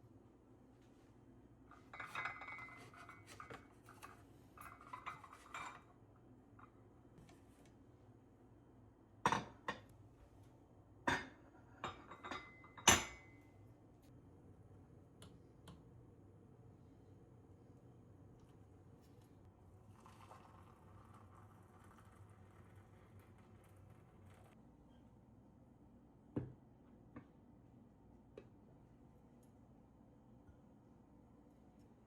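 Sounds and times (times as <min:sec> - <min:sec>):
dishes and cutlery clinking: 0:01.9 - 0:05.9, 0:11.1 - 0:13.4.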